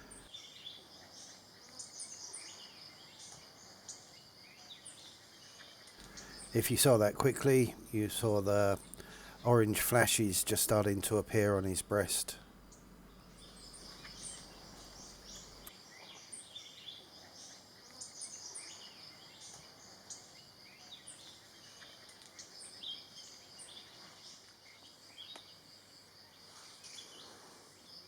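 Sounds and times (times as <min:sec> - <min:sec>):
insect trill: 0:00.0 - 0:28.0
bird chirps: 0:06.0 - 0:17.5.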